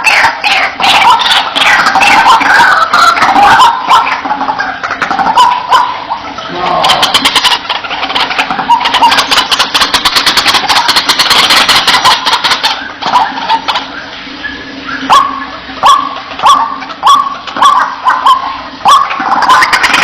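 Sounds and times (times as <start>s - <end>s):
bird harsh croaking calls: 0.0s - 20.0s.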